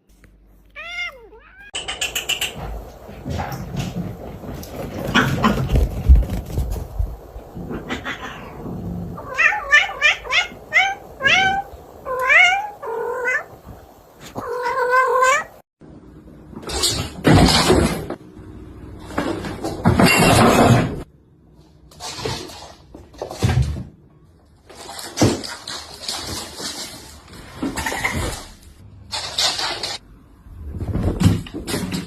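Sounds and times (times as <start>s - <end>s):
cat meowing: 0.8s - 1.8s, 9.2s - 13.5s, 14.3s - 15.6s.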